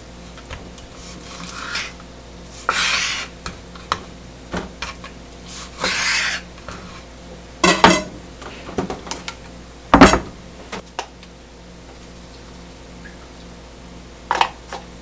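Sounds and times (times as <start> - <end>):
kitchenware scraping: 0.4 - 9.4, 10.0 - 10.8
dishes or pans clattering: 7.6 - 9.4, 10.0 - 10.4.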